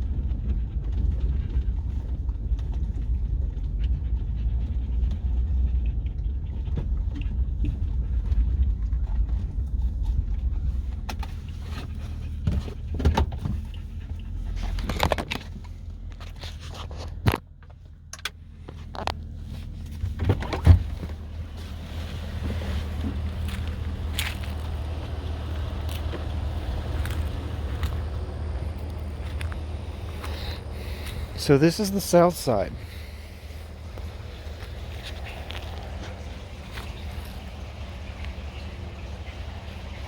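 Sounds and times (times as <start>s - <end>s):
pickup truck rolling on rough track: 0.0s - 17.6s, 18.5s - 40.0s
dog panting: 2.7s - 8.6s.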